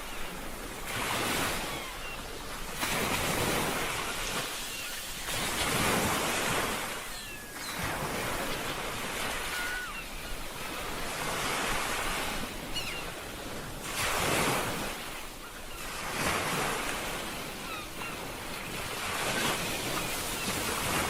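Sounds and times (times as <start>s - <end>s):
ocean waves breaking on shore: 0.0s - 21.0s.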